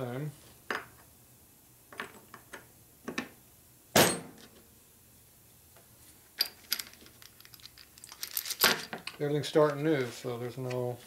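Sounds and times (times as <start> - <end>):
metal parts clinking and knocking: 6.4 - 9.8.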